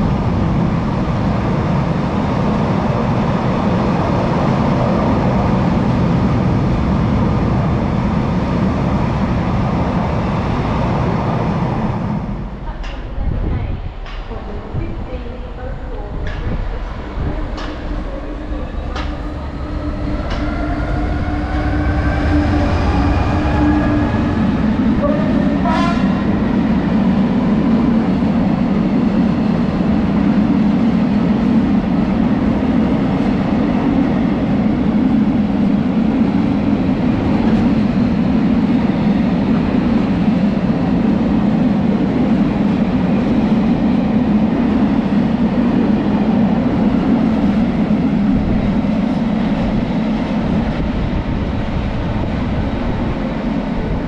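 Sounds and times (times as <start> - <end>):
train rumble: 0.0 - 54.0
train whine: 0.0 - 54.0.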